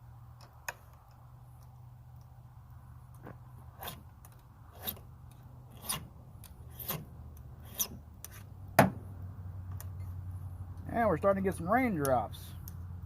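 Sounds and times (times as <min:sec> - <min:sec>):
file rasping on chainsaw chain: 0:03.7 - 0:04.0, 0:04.7 - 0:05.0, 0:05.7 - 0:06.1, 0:06.7 - 0:08.5.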